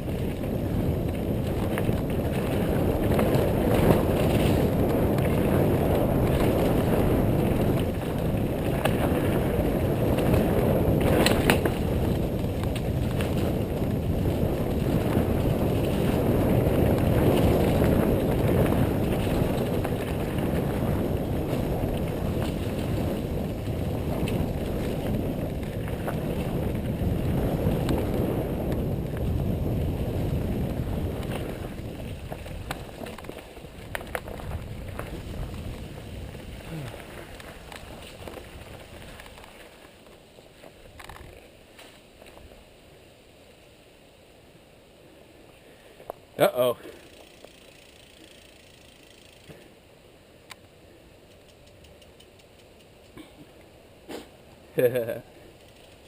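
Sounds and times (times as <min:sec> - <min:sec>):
tyre rumble on dirt: 0:00.0 - 0:42.6
bike rattling: 0:00.0 - 0:42.8, 0:45.8 - 0:49.8, 0:51.2 - 0:53.5, 0:54.3 - 0:56.0
wind: 0:00.0 - 0:56.0.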